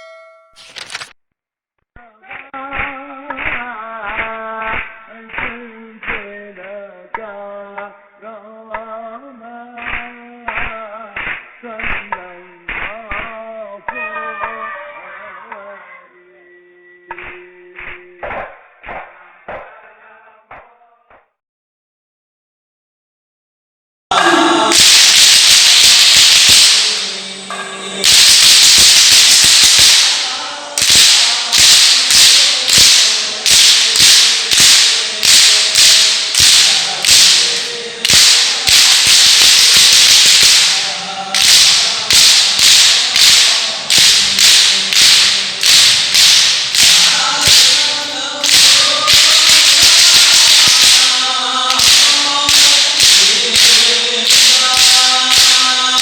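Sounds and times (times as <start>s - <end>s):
men chanting: 2.0s - 18.3s, 19.6s - 21.1s, 24.1s - 56.0s
frame drums beaten by a group: 24.1s - 56.0s.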